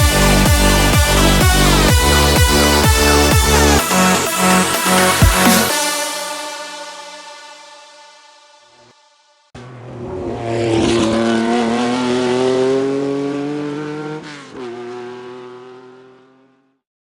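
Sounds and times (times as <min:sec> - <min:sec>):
car engine accelerating: 0:09.6 - 0:16.8.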